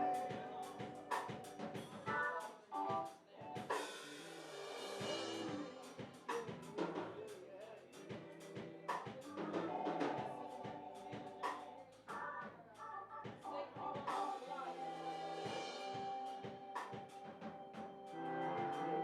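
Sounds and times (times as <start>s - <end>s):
drum kit snare and kick: 0.0s - 2.3s, 2.9s - 7.3s, 8.0s - 12.2s, 15.3s - 18.8s
keyboard chords: 0.0s - 3.9s, 13.8s - 19.0s
people singing worship song: 5.1s - 12.0s
cymbal swell: 14.3s - 19.0s.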